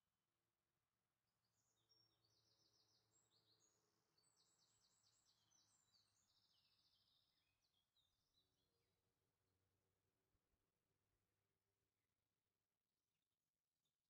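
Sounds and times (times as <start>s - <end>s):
faint songbird chirps and trills: 1.4s - 8.8s.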